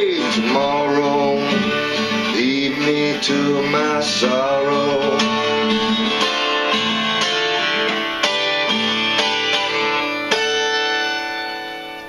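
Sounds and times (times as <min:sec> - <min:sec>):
solo guitar picking: 0:00.0 - 0:12.0.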